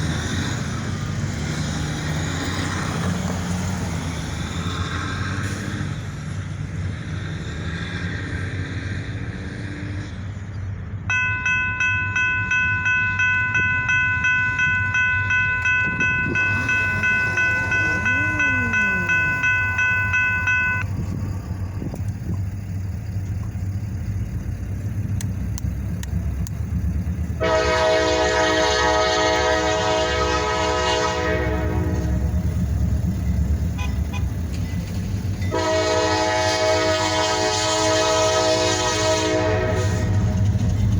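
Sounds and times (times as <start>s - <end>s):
diesel locomotive rumble: 0.0s - 40.9s
locomotive bell ringing: 11.1s - 21.6s, 26.7s - 37.0s
locomotive air horn blast: 15.6s - 20.8s, 27.3s - 32.8s, 33.6s - 34.5s, 35.5s - 40.6s.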